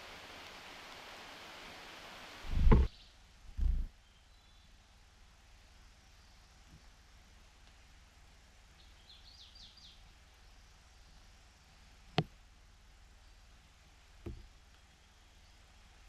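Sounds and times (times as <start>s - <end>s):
low steady hum: 0.0s - 16.0s
dull knock: 2.5s - 2.9s
faint high bird chirps: 3.8s - 4.8s, 8.8s - 11.4s.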